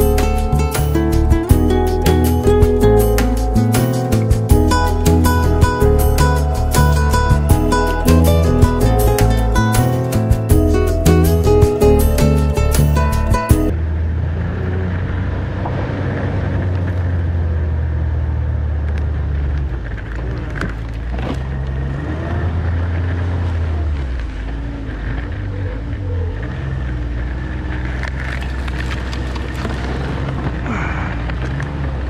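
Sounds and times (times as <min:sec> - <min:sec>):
snowmobile engine droning: 0:13.7 - 0:32.0.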